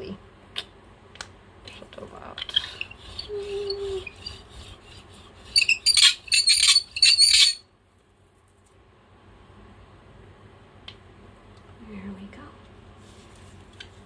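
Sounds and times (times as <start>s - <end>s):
bird squawking shrilly: 5.6s - 7.6s.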